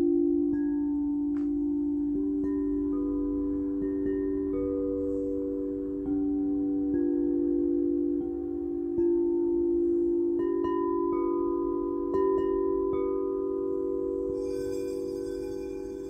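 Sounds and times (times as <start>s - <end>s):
singing bowls humming: 0.0s - 16.0s
bright chime notes: 14.2s - 16.0s.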